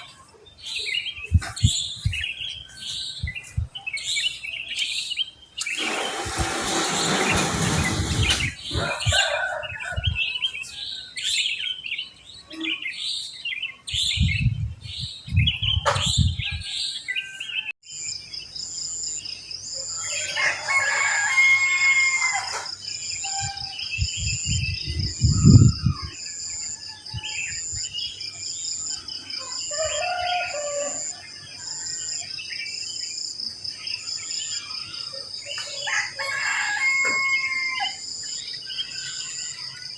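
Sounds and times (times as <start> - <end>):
songbirds chirping: 0.0 - 39.9
rooster crowing: 8.7 - 11.1, 20.0 - 22.7, 29.4 - 31.2, 35.8 - 38.0.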